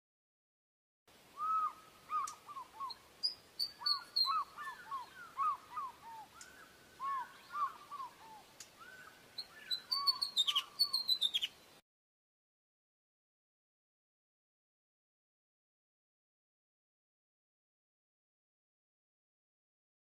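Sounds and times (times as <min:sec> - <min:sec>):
osprey whistled calls: 0:01.4 - 0:11.6.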